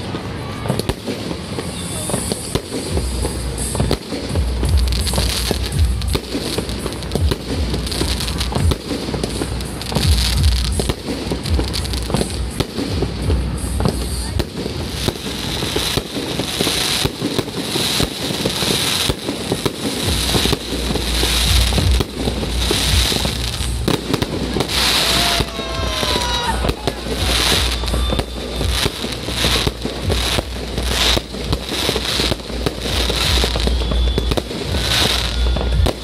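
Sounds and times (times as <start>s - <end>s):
fireworks bursting: 0.0s - 36.0s
fireworks crackling: 0.0s - 36.0s
low booms: 19.1s - 36.0s.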